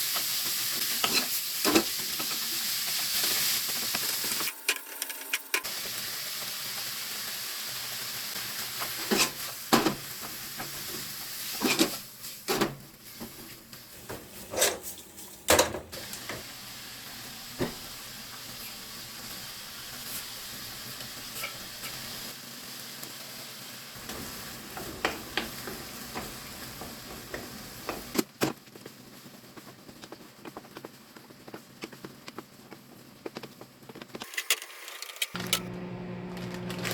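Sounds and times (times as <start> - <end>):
food sizzling in a frying pan: 0.0 - 14.4, 15.9 - 30.1.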